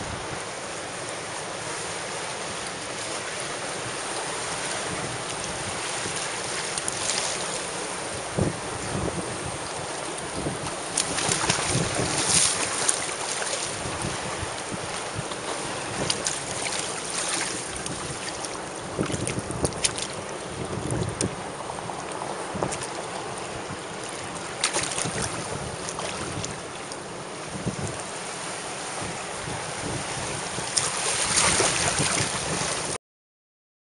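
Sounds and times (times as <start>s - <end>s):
sea water splashing: 0.0s - 33.0s
wind buffeting microphone: 3.5s - 33.0s.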